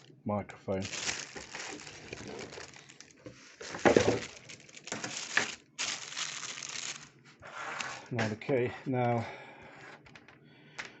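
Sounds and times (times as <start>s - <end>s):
crinkling and rustling handling: 0.7s - 9.2s.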